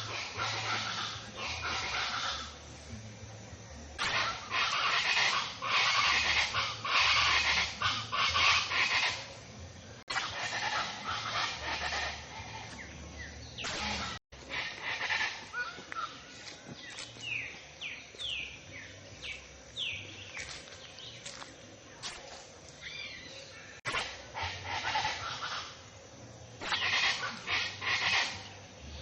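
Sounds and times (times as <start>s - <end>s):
birds calling: 0.0s - 29.0s
bursts of hissing noise: 23.8s - 29.0s.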